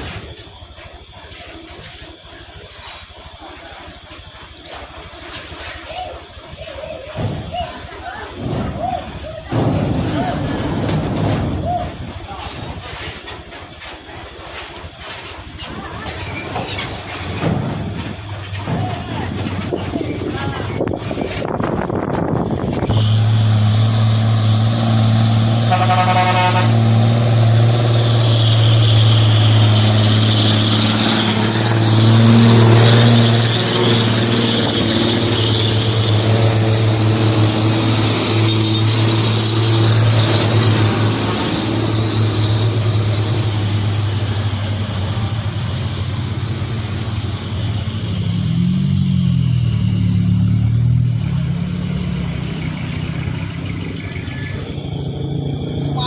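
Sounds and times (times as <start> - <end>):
diesel truck engine running: 0.0 - 56.0
truck horn toot: 22.7 - 36.6, 38.1 - 41.2.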